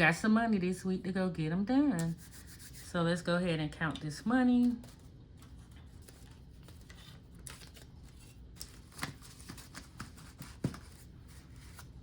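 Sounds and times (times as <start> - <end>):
paper banknotes rustling: 4.6 - 12.0.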